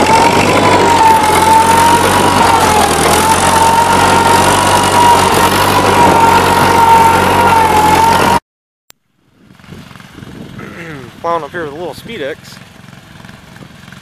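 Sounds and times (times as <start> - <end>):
steady high tone: 0.0 - 8.4
tractor engine running: 0.0 - 8.4, 9.0 - 14.0.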